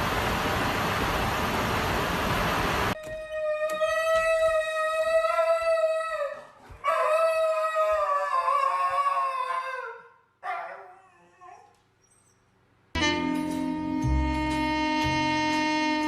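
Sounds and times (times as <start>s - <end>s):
dog howling: 3.0s - 11.8s.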